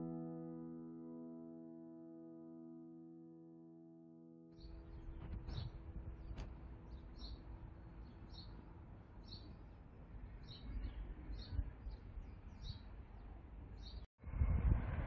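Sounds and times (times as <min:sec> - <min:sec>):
bird chirping: 0:04.6 - 0:09.8, 0:10.4 - 0:14.1.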